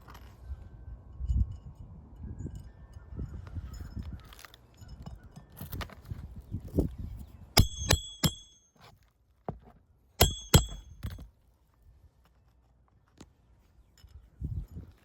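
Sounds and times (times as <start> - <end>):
hammer striking roofing nails: 7.6 - 8.6, 10.2 - 11.2.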